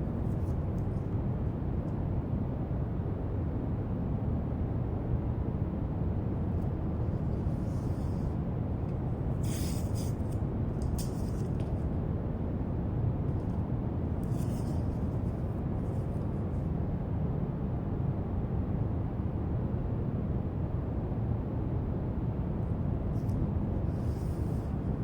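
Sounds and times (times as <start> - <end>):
drawing tool scratching paper: 9.4 - 11.7.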